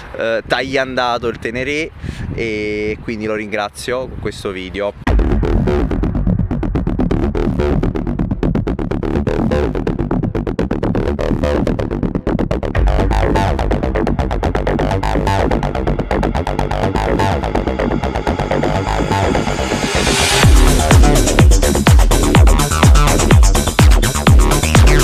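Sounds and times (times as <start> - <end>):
electronic dance music: 6.8 - 25.0.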